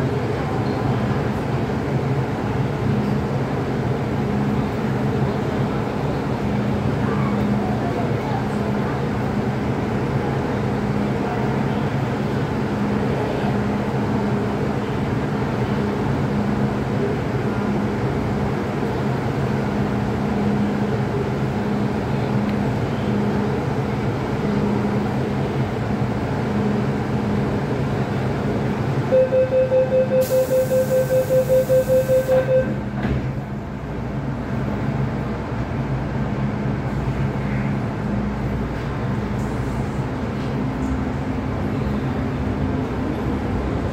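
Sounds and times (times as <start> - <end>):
train rumbling: 0.0 - 43.9.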